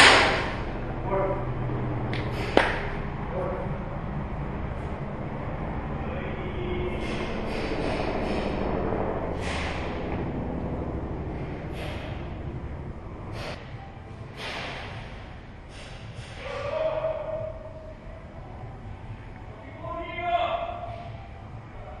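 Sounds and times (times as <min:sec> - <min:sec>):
short sharp snaps: 0:02.1 - 0:02.9
person breathing hard: 0:11.3 - 0:12.6, 0:13.2 - 0:16.7.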